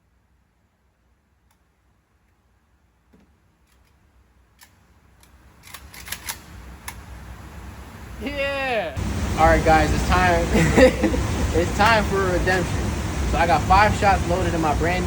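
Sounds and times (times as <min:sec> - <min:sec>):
low hum: 0:08.9 - 0:15.0.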